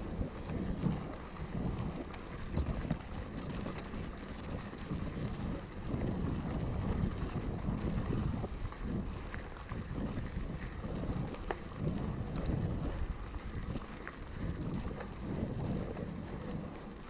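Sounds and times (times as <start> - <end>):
bike rolling noise: 0.0 - 17.0
wind buffeting microphone: 0.0 - 17.0
small ticks: 7.8 - 17.0.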